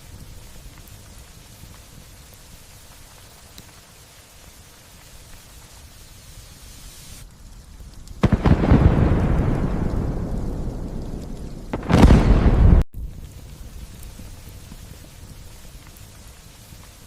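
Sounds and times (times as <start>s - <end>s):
light rain hissing: 0.0s - 17.0s
thunder crack rolling: 8.2s - 12.9s.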